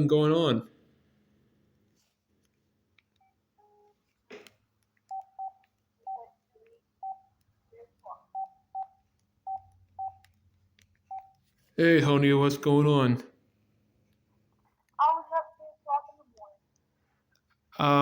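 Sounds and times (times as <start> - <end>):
phone keypad beeps: 5.1 - 7.4, 8.0 - 10.4, 11.0 - 11.5.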